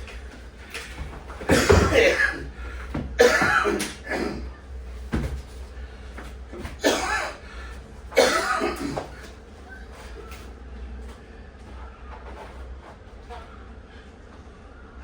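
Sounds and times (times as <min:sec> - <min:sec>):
steady low hum: 0:00.0 - 0:15.0
person coughing: 0:01.5 - 0:04.6, 0:06.7 - 0:07.4, 0:08.1 - 0:09.2.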